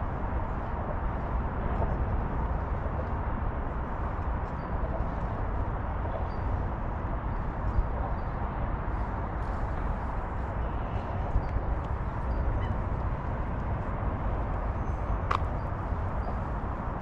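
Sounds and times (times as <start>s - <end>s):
outdoor ambient rumble: 0.0s - 17.0s.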